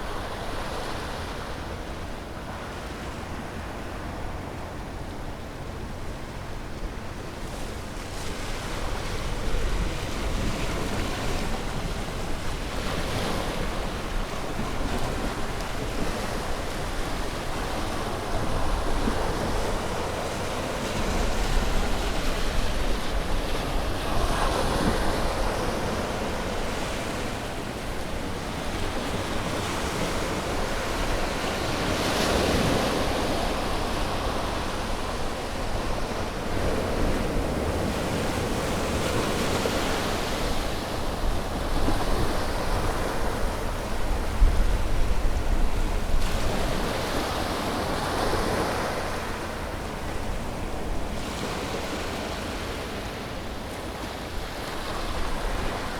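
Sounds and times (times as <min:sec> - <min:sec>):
ocean waves breaking on shore: 0:00.0 - 0:55.9
wind on microphone: 0:08.8 - 0:51.6.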